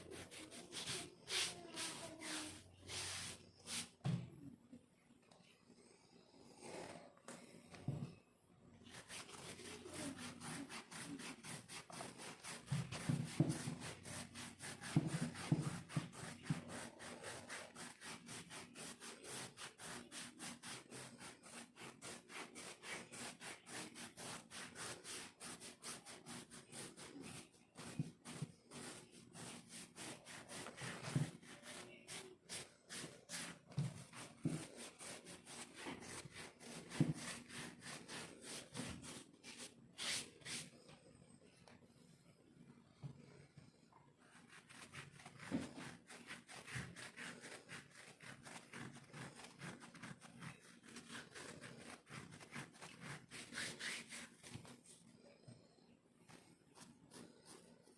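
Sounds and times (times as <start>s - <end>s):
scratching dry skin: 8.9s - 40.6s, 44.3s - 54.8s.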